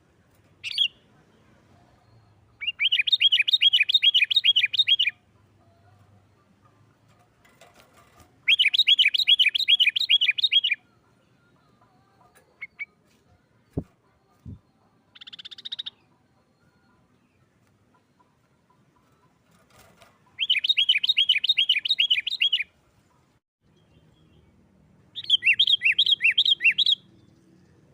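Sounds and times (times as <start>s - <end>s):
bird ringing call: 8.5s - 11.4s, 14.7s - 19.4s.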